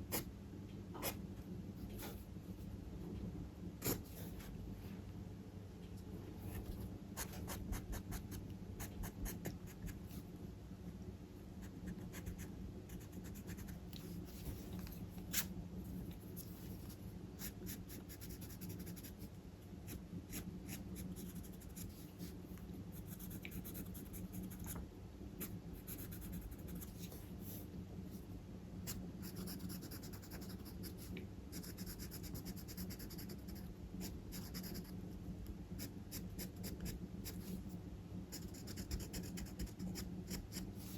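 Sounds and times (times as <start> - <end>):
steady low hum: 0.0 - 40.9
charcoal pencil scratching on paper: 31.5 - 34.9, 38.3 - 40.9.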